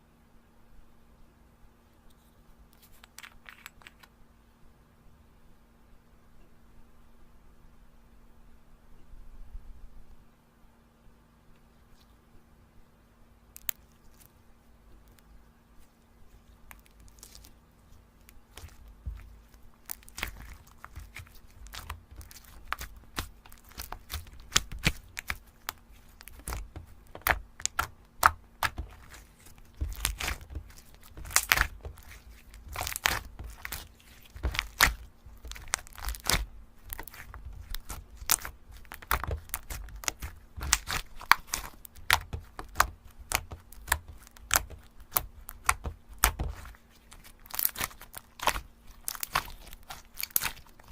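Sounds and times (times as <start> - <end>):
sticky slime crackles and pops: 16.6 - 17.6, 18.2 - 50.9.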